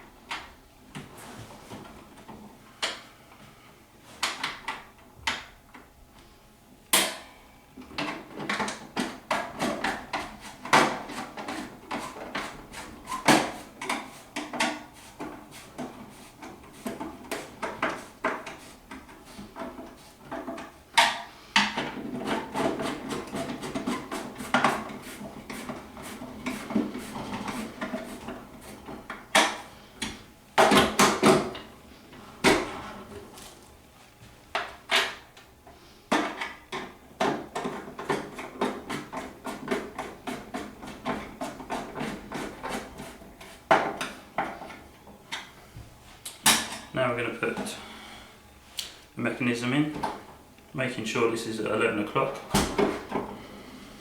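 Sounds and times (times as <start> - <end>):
plastic parts knocking and clattering: 7.9 - 12.5, 36.1 - 42.2.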